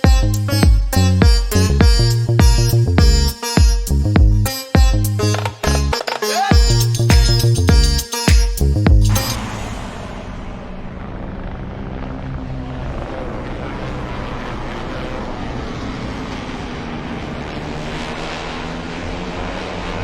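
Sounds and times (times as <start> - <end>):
engine drone with rushing hiss: 9.0 - 20.0.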